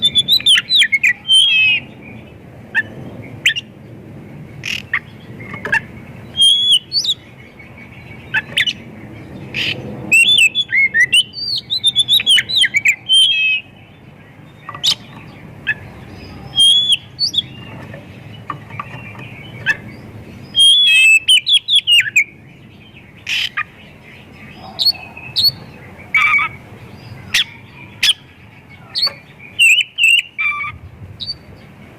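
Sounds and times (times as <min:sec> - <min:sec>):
magpie-robin singing: 0:00.0 - 0:03.8, 0:04.5 - 0:31.9.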